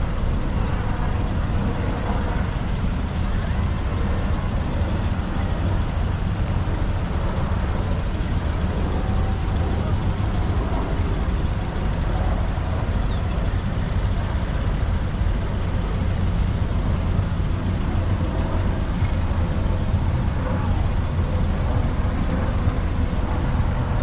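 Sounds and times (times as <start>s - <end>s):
car engines rumbling: 0.0s - 24.0s
faint murmur of voices: 0.0s - 24.0s.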